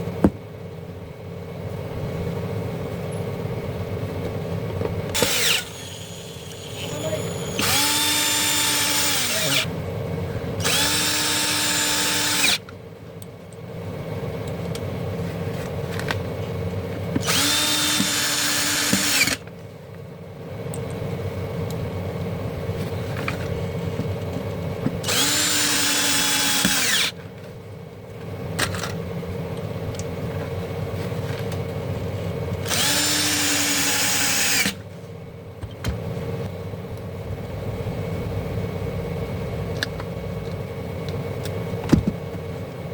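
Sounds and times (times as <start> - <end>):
power drill motor whining: 5.2 - 9.7, 10.6 - 12.6, 17.2 - 19.4, 25.0 - 27.2, 32.6 - 34.8.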